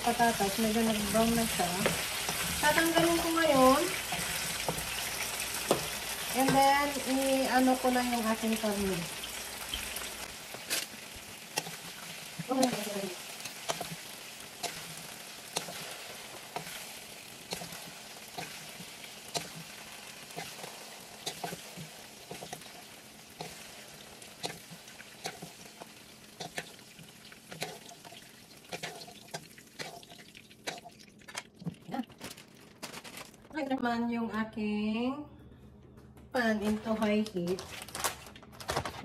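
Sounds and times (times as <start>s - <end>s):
vegetables sizzling in hot oil: 0.0s - 31.2s
spatula scraping pan: 0.8s - 7.3s, 11.6s - 26.8s, 27.5s - 30.9s.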